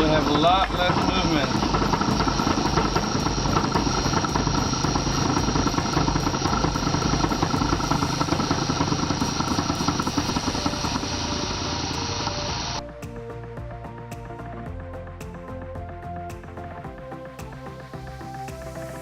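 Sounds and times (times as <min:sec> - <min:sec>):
lathe mechanical drone: 0:00.0 - 0:12.9.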